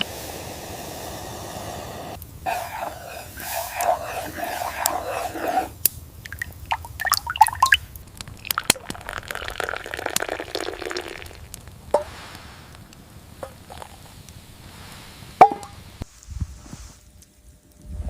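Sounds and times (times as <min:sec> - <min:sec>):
liquid dripping and sloshing: 0:03.7 - 0:12.0.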